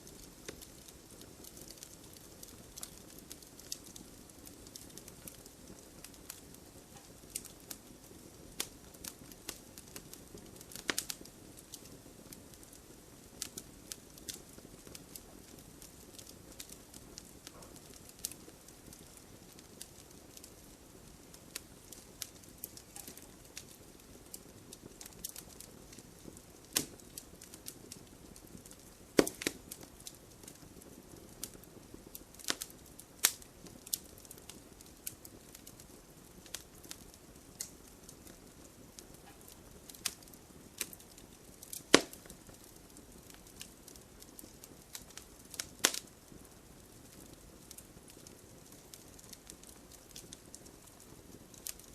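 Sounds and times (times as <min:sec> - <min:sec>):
hiss of flame: 0:00.0 - 0:51.9
wood fire crackling: 0:00.0 - 0:51.9
logs popping: 0:22.3 - 0:23.7, 0:28.7 - 0:29.8, 0:41.6 - 0:42.4.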